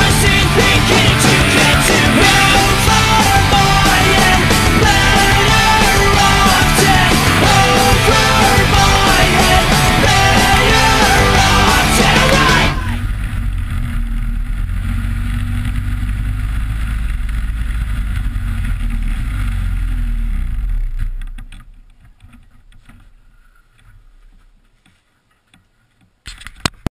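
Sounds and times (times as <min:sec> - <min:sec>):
snowmobile engine running: 0:00.0 - 0:21.4.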